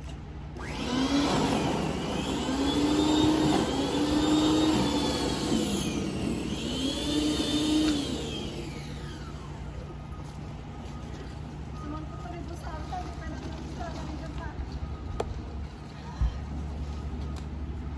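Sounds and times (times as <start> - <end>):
snowblower engine running: 0.6 - 10.0.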